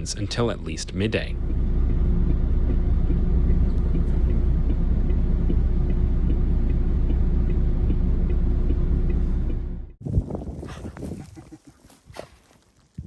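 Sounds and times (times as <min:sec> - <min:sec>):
vehicle rumbling: 0:00.0 - 0:11.8
faint regular ticking: 0:00.1 - 0:10.0.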